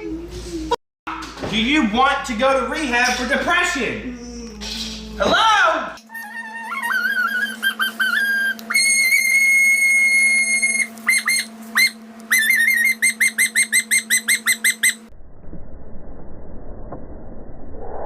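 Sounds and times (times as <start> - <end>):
steady low hum: 0.0 - 17.9
shrill whistle-like tones: 8.3 - 15.0.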